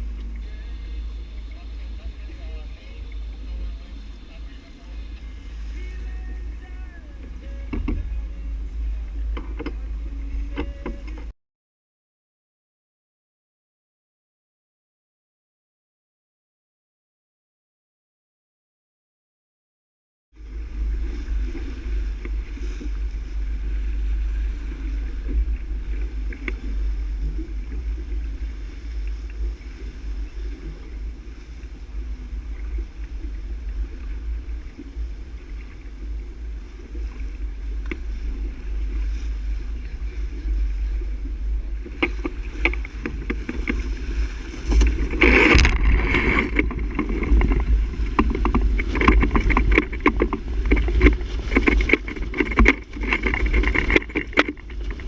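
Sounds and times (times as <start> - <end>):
water rushing along hull: 0.0 - 11.3, 20.4 - 55.0
water splashing: 0.0 - 11.3, 20.4 - 55.0
wind buffeting microphone: 20.4 - 55.0.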